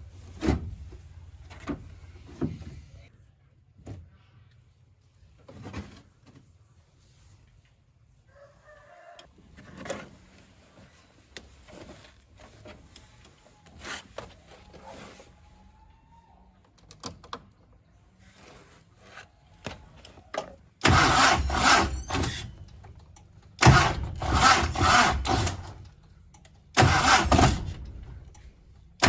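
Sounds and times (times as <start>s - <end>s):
car engine starting: 20.8s - 26.0s, 26.7s - 29.0s.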